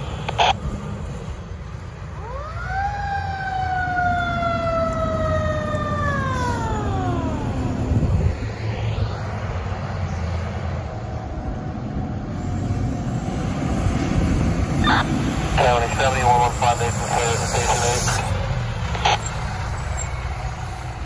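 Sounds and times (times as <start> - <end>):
heavy truck engine rumbling: 0.0 - 21.0
mechanical fire truck siren: 2.2 - 8.2.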